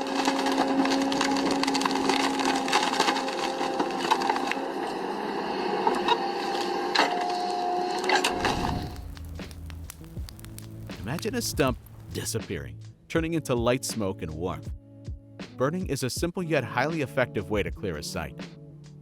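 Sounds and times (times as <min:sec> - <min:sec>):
wood cracking and splintering: 0:00.0 - 0:04.6, 0:08.2 - 0:12.4.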